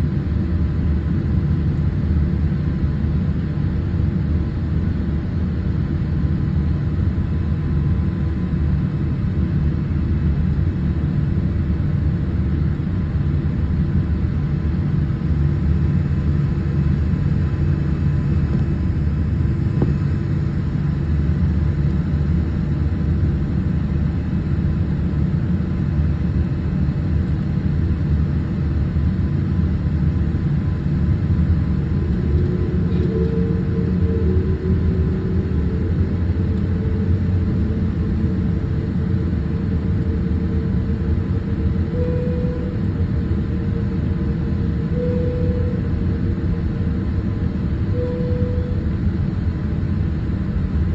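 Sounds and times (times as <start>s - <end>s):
airliner cabin rumble: 0.0s - 50.9s
faint steady whine: 0.0s - 50.9s.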